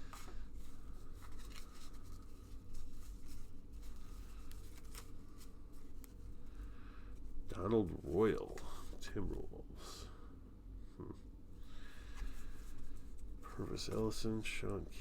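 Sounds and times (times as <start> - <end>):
cards clicking and rustling: 0.0 - 6.2
low steady hum: 0.0 - 15.0.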